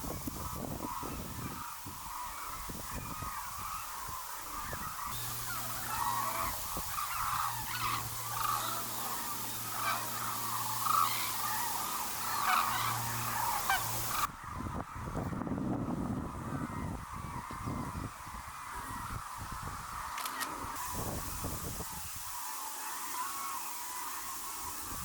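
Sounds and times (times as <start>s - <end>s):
waterbirds calling: 0.0s - 15.0s, 16.6s - 25.0s
steady low hum: 5.1s - 14.3s.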